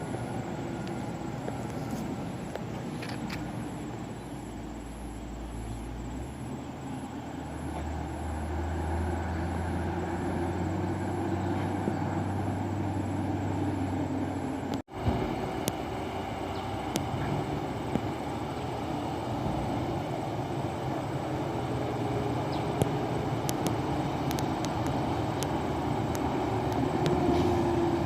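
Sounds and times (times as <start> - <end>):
diesel truck engine rumble: 0.0 - 28.0
sharp clicks: 22.8 - 27.2.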